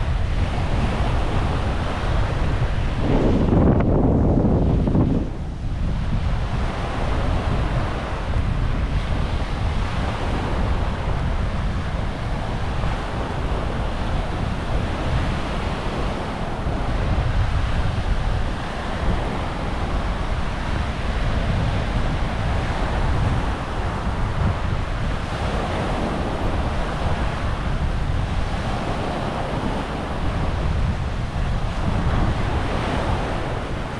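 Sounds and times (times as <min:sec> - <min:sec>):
small waves washing on beach: 0:00.0 - 0:33.9
wind buffeting microphone: 0:00.0 - 0:33.9.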